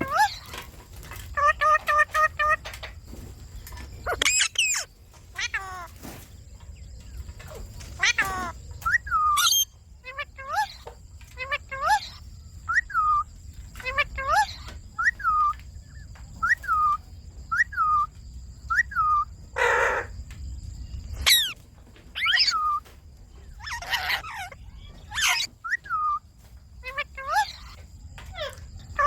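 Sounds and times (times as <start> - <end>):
parakeets rasping squawks: 0.0 - 0.6, 1.3 - 2.6, 4.0 - 6.2, 7.5 - 13.2, 13.8 - 15.5, 18.7 - 20.1, 21.2 - 21.6, 22.2 - 22.8, 23.4 - 26.2, 26.8 - 29.0
parakeets shrill calls: 0.0 - 0.6, 1.3 - 2.6, 4.0 - 6.2, 7.5 - 15.6, 16.4 - 18.1, 18.7 - 20.1, 21.0 - 21.6, 22.2 - 22.9, 23.5 - 26.2, 26.8 - 29.0.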